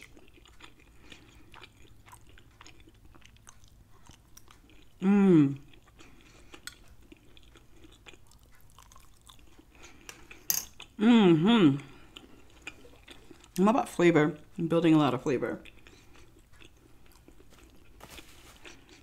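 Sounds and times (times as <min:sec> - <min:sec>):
wet chewing mouth sounds: 0:00.0 - 0:11.0, 0:11.8 - 0:13.6, 0:15.6 - 0:19.0
person humming mmm: 0:05.0 - 0:05.8, 0:11.0 - 0:12.1.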